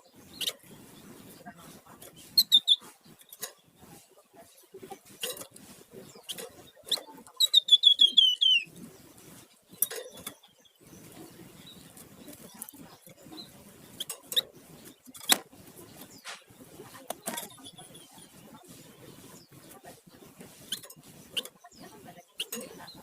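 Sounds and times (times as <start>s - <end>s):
songbird trill: 0.0s - 4.8s, 6.0s - 23.0s
faint rustling: 0.0s - 23.0s
short bird chirps: 6.9s - 8.7s.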